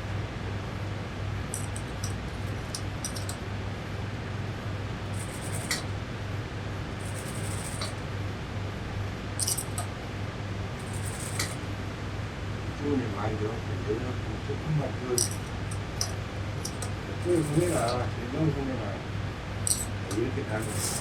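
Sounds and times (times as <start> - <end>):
low electrical hum: 0.0 - 21.0
spray bottle squirting: 1.5 - 3.4, 5.1 - 5.9, 7.0 - 8.0, 9.4 - 9.9, 10.8 - 11.6, 15.2 - 18.0, 19.7 - 21.0
spray bottle trigger clicks: 1.6 - 3.4, 5.1 - 5.8, 9.4 - 9.9, 10.8 - 11.6.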